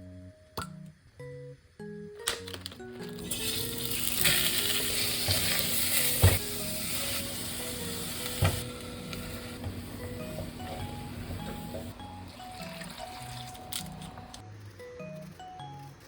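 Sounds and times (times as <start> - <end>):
food sizzling in a frying pan: 3.2 - 13.7.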